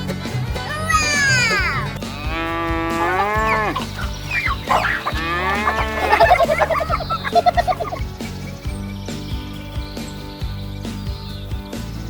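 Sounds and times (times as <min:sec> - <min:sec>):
background music: 0:00.0 - 0:12.0
cattle mooing: 0:02.1 - 0:06.6.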